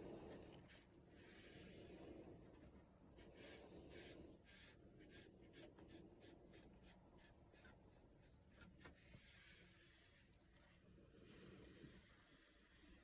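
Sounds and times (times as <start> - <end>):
brush strokes on paper: 3.2 - 13.0.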